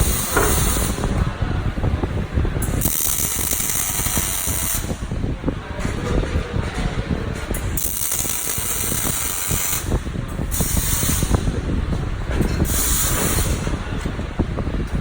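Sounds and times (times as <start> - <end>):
welding crackling: 2.6 - 5.1, 7.5 - 11.5.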